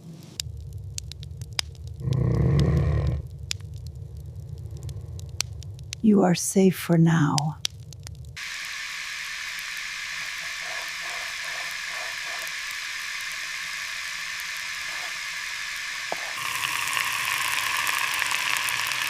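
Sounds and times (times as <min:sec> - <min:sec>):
fine crackle: 0:00.0 - 0:06.2, 0:06.9 - 0:19.0
steady ambient hiss: 0:00.0 - 0:19.0.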